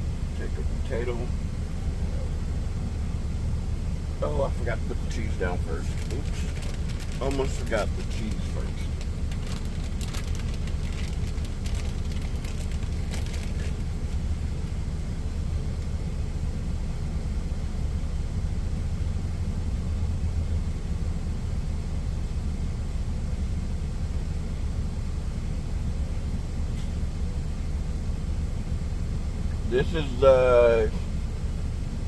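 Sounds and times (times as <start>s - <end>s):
truck engine idling: 0.0s - 32.0s
light clicks and rustles: 5.9s - 14.2s.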